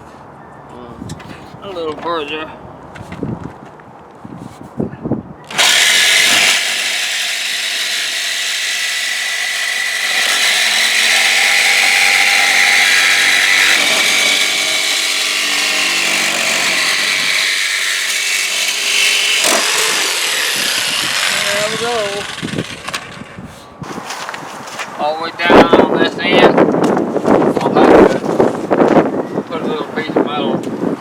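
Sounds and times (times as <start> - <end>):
power saw cutting: 5.5 - 23.5.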